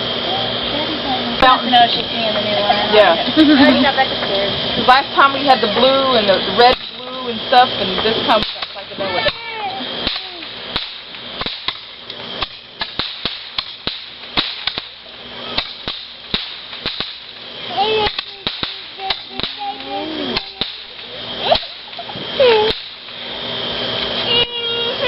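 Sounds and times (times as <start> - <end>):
fireworks crackling: 0.0 - 25.0.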